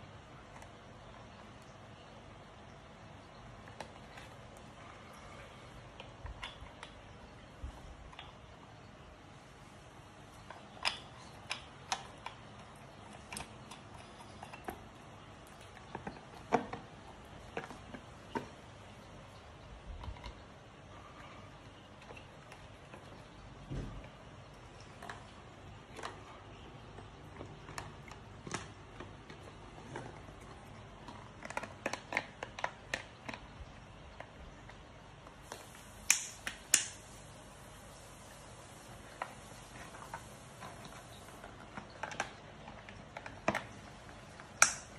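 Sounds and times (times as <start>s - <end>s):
small parts clicking and tapping: 21.8s - 37.2s, 39.2s - 44.9s.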